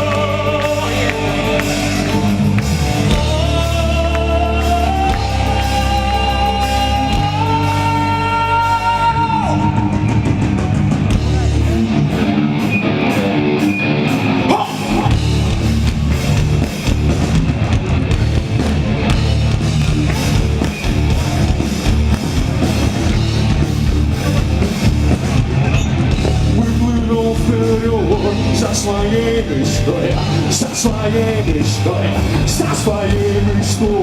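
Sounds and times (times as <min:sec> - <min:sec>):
live rock band playing: 0:00.0 - 0:34.0.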